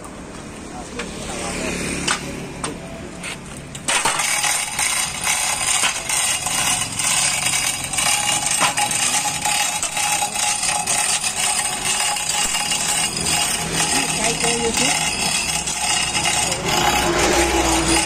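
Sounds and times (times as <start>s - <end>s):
metallic rattling and clinking: 3.7s - 18.0s.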